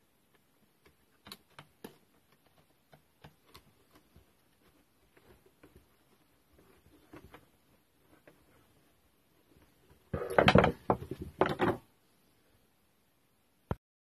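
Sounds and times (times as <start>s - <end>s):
hand tools clicking and tapping: 0.8s - 6.1s.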